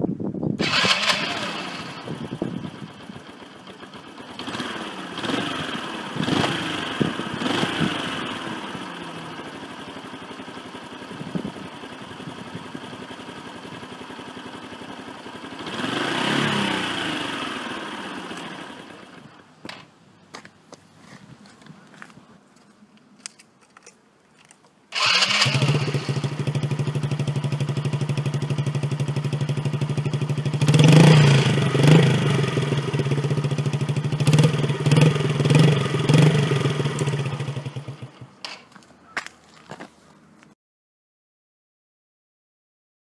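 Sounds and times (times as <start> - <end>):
motorcycle engine revving and idling: 0.6 - 19.8, 25.0 - 38.8.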